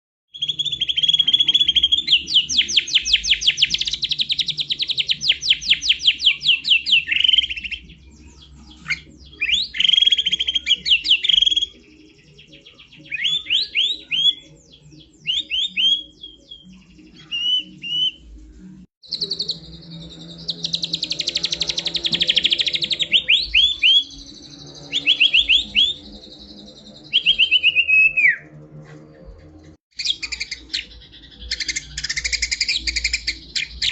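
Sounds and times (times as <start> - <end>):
bird whistled phrases: 0.4 - 7.8, 8.8 - 11.8, 12.4 - 18.2, 19.1 - 26.2, 26.8 - 28.5, 30.0 - 33.9
bird singing rapid trills: 19.0 - 28.4, 29.9 - 33.9.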